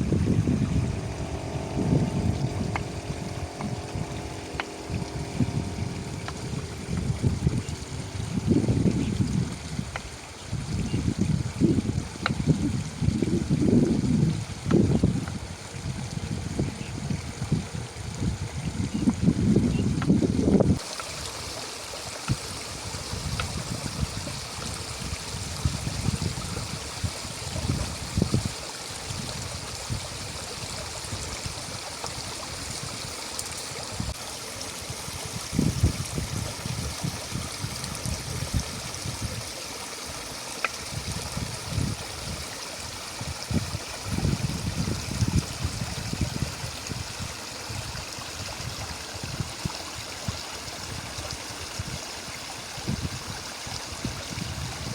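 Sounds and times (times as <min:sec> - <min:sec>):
low rumbling bursts: 0:00.0 - 0:20.8
stream flowing: 0:00.0 - 0:54.9.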